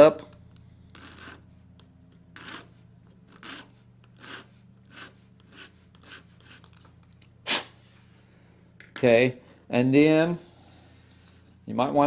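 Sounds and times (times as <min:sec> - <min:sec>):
hand file rasping on plastic: 0:00.9 - 0:01.4, 0:02.4 - 0:06.8.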